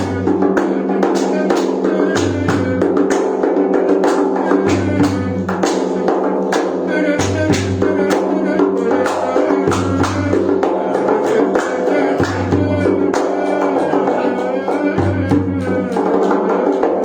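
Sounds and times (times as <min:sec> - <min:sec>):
instrumental band music: 0:00.0 - 0:17.0
steady drum beat: 0:00.0 - 0:17.0.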